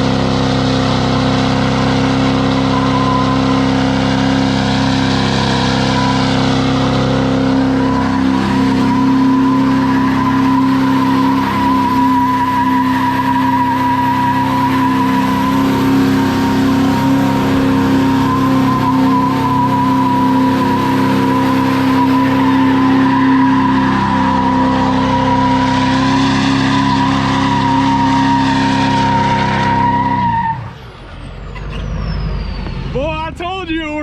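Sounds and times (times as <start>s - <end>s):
tyres squealing: 0.0s - 33.0s
diesel truck engine revving: 0.0s - 34.0s.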